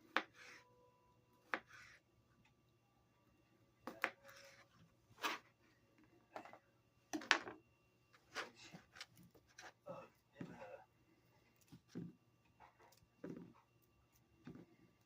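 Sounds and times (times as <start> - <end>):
knife cutting on cutting board: 1.5 - 2.0, 5.2 - 5.5.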